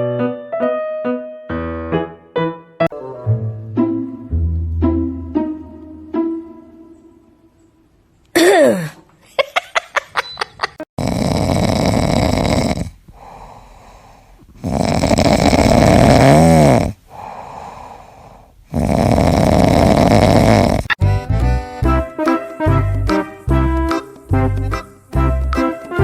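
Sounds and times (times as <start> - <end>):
brief squeak: 10.2 - 10.6
pet snoring: 11.0 - 13.4, 14.6 - 17.3, 18.7 - 21.0.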